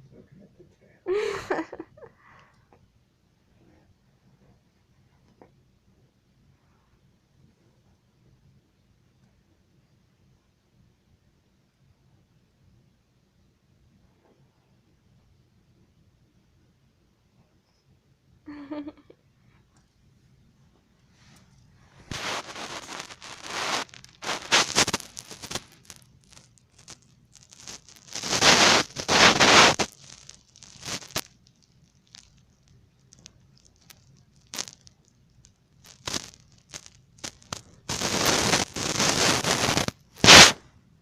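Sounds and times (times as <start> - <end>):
fabric rustling and scraping: 21.1 - 25.9.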